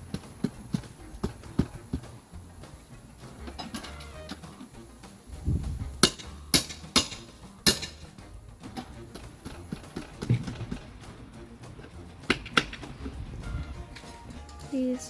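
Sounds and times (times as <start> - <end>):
tool knocking and prying wood: 5.4 - 13.2.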